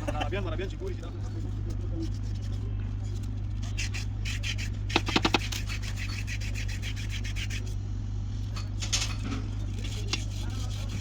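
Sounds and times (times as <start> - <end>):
steady low hum: 0.0 - 11.0
hand scraping strokes: 1.2 - 7.8, 9.6 - 11.0.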